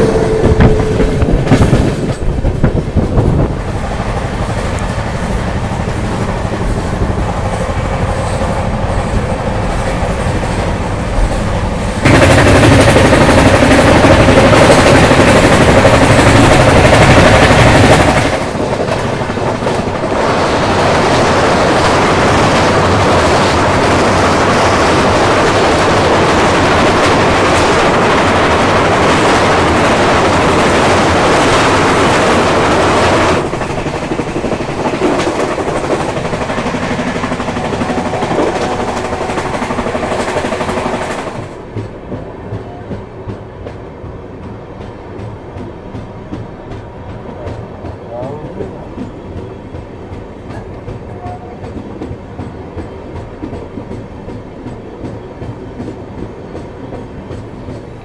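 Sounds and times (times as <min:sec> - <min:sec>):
train wheels clacking on rails: 0:00.0 - 0:58.0
steady tone: 0:35.6 - 0:41.3.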